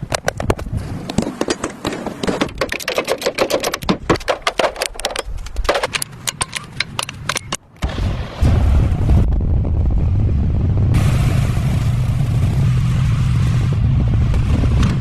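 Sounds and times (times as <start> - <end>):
rapid clicking and tapping: 0.0 - 7.6.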